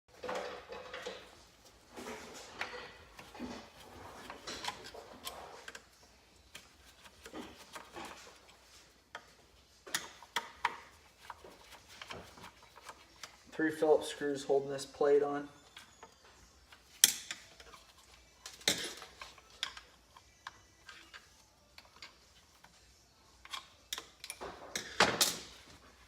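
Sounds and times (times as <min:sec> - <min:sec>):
hand tools clicking and tapping: 0:02.6 - 0:05.9, 0:09.1 - 0:13.4, 0:15.7 - 0:22.7, 0:23.4 - 0:25.7.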